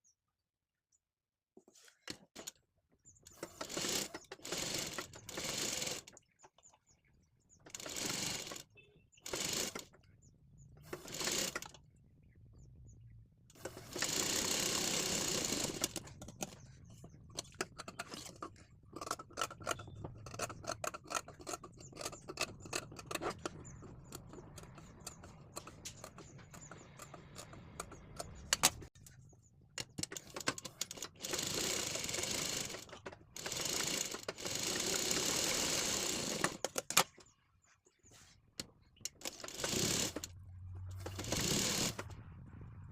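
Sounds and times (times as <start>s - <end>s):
sewing machine clicks: 3.3s - 6.2s, 7.6s - 10.0s, 10.8s - 11.8s, 13.5s - 29.0s, 29.8s - 37.3s, 39.0s - 40.3s, 40.9s - 42.1s
sewing machine stitching: 3.3s - 6.2s, 7.7s - 10.0s, 10.8s - 11.8s, 13.6s - 28.9s, 29.9s - 37.1s, 39.1s - 42.2s.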